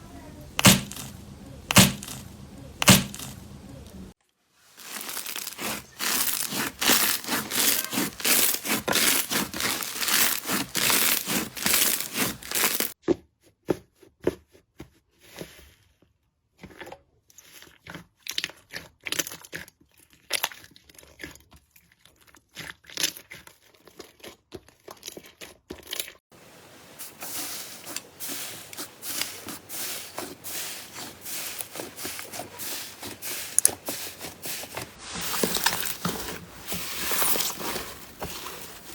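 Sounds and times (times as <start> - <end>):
slime crackling and popping: 4.8 - 12.9.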